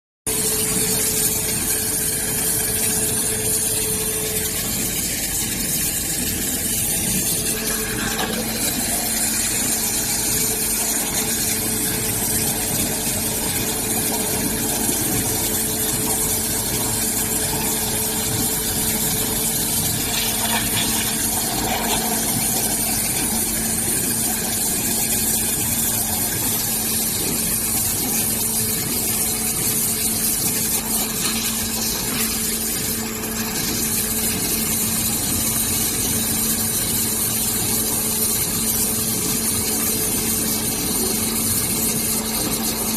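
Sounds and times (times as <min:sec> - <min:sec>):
pump humming: 0:00.3 - 0:42.9
water jet hissing: 0:18.2 - 0:25.4.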